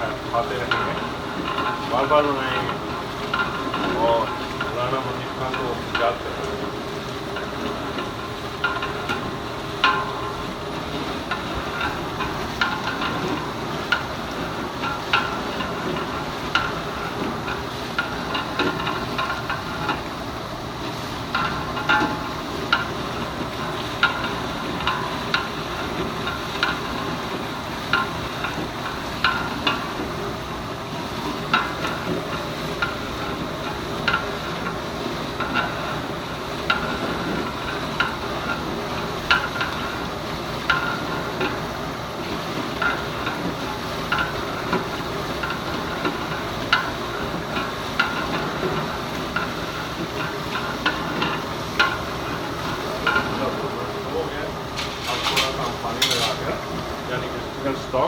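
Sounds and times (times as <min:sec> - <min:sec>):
ladle clacking against pot: 0:20.8 - 0:30.2, 0:31.3 - 0:53.6, 0:54.6 - 0:56.9
food sizzling: 0:41.6 - 0:57.7.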